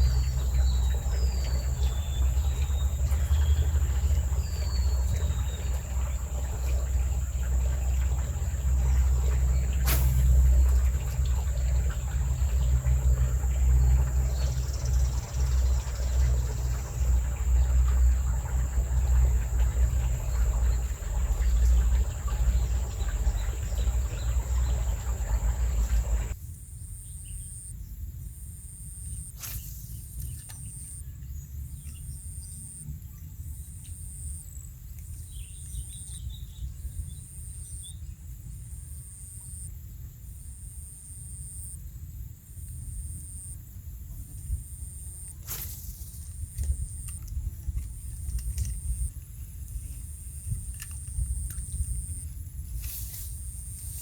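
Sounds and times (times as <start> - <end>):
insect chirping in pulses: 0.0 - 26.4
loud low rumble: 0.0 - 26.4.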